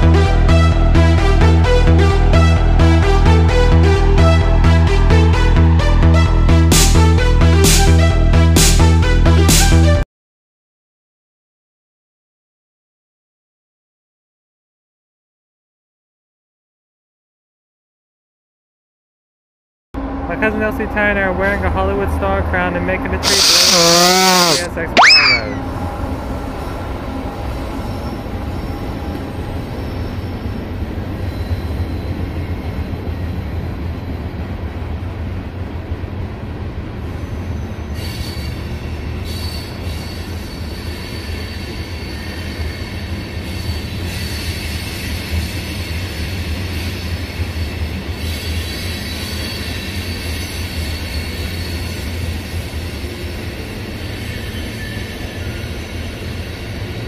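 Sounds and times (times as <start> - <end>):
train rumbling past: 20.0 - 23.2
train wheels squealing: 27.5 - 34.5, 37.0 - 57.0.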